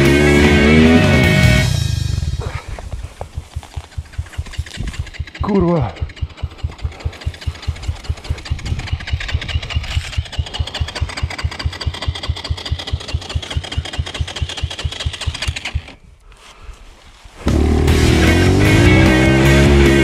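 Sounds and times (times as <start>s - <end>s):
music: 0.0s - 2.2s, 17.5s - 20.0s
dirt bike engine idling: 0.0s - 20.0s.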